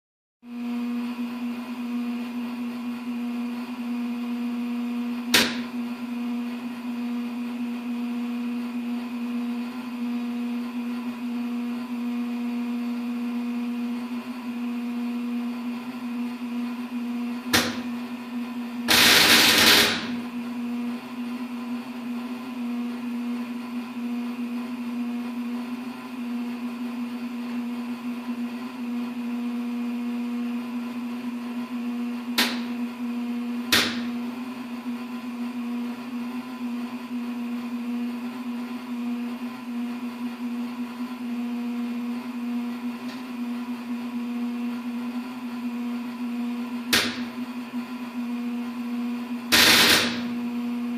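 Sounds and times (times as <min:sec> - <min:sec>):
furnace humming: 0:00.4 - 0:50.9
loud harsh burst: 0:18.9 - 0:20.2, 0:49.5 - 0:50.3.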